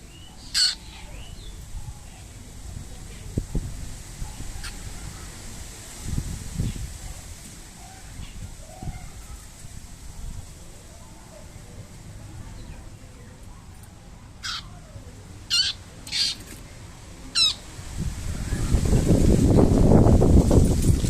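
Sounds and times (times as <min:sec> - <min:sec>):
bird giving harsh high calls: 0:00.4 - 0:01.1, 0:14.4 - 0:14.9, 0:15.5 - 0:16.4, 0:17.4 - 0:17.6.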